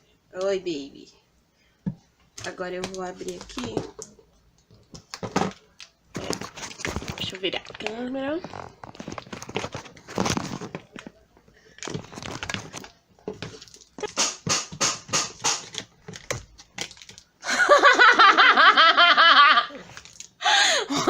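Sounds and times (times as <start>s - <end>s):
packaging tearing and crinkling: 6.1s - 11.0s, 11.8s - 14.4s, 15.5s - 17.3s, 19.8s - 20.4s.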